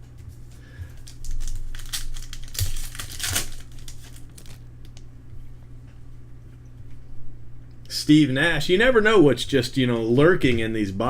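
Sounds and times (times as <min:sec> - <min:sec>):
steady low hum: 0:00.0 - 0:11.0
plastic wrappers crinkling and tearing: 0:00.8 - 0:05.0.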